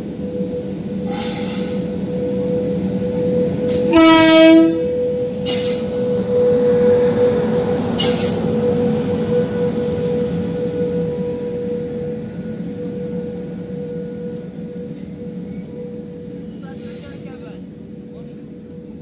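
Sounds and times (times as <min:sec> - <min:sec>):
train rolling with high whine: 0:00.0 - 0:19.0
train horn blast: 0:03.4 - 0:12.2.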